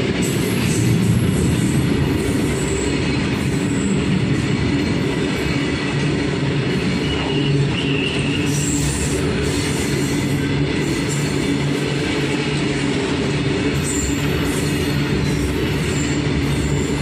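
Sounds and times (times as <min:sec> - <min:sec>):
train wheels rumbling on rail: 0:00.0 - 0:17.0
high-pitched wheel squeal: 0:06.9 - 0:10.4, 0:13.8 - 0:17.0.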